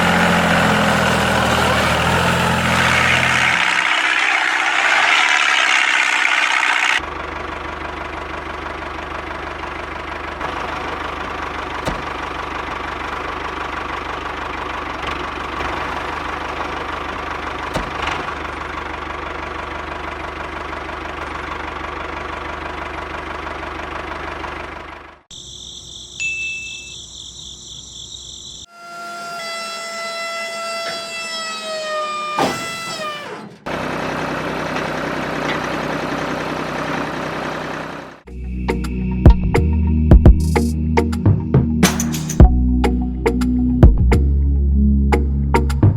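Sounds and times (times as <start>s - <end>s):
machine winding down whine: 2.6s - 7.0s, 26.8s - 33.6s
small motor humming: 2.9s - 7.0s.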